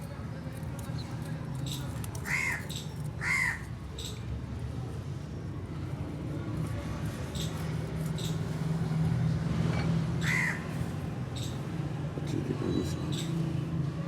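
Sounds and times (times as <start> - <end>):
crow cawing: 2.2 - 2.6, 3.2 - 3.6, 10.2 - 10.7.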